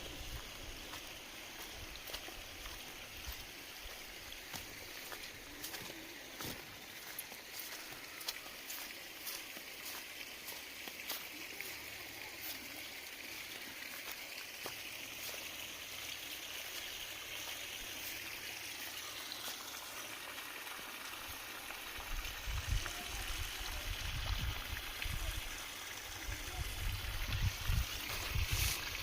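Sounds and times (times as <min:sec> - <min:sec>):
wind buffeting microphone: 0:26.6 - 0:29.0.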